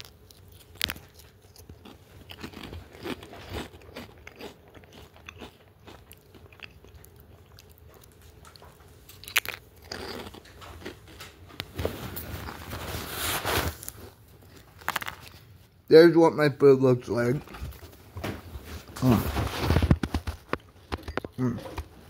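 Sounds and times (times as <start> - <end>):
crunchy chewing: 0.0 - 15.6.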